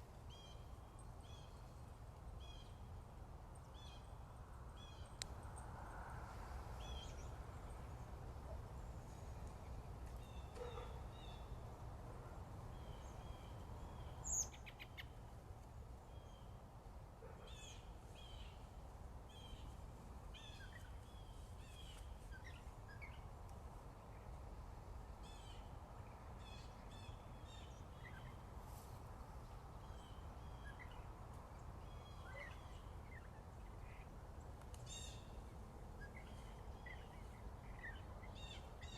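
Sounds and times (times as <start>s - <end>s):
small birds chirping: 19.3s - 23.3s, 29.8s - 38.9s.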